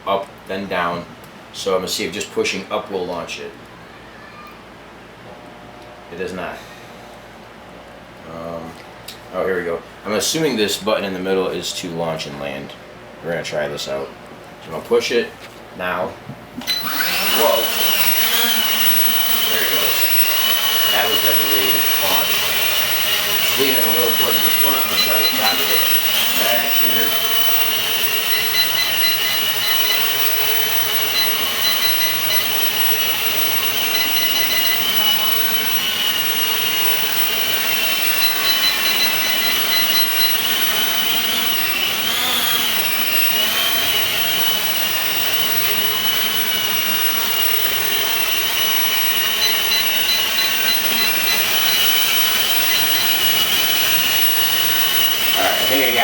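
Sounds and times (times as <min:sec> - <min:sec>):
drone motors whining: 0:16.6 - 0:56.0.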